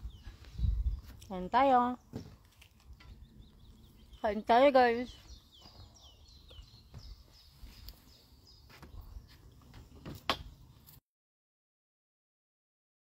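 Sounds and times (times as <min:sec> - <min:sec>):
low wind rumble: 0:00.0 - 0:01.5.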